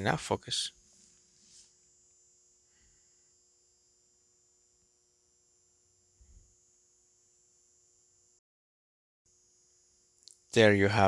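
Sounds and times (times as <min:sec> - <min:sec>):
faint electrical hum: 0:00.0 - 0:08.4, 0:09.3 - 0:11.0.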